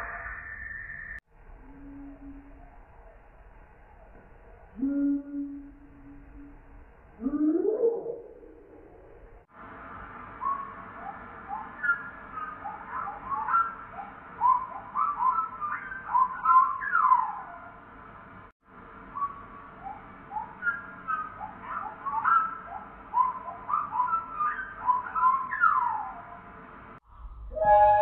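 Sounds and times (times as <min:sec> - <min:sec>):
slowed-down bird song: 0:00.0 - 0:17.8, 0:19.0 - 0:26.6.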